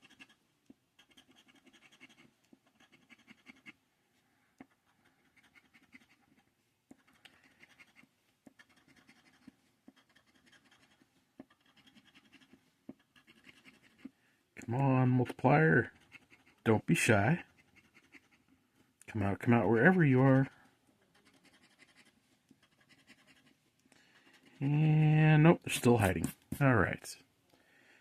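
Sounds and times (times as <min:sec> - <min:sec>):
scratching lottery ticket coating: 0:19.1 - 0:24.9.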